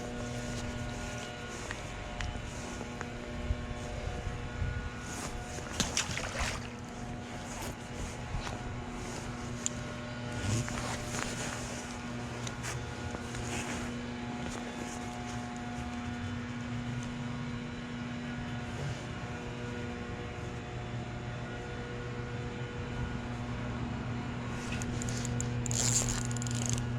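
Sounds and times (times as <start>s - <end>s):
low mechanical drone: 0.0s - 26.9s
faint clicks and rustles: 6.8s - 16.2s, 24.6s - 26.9s.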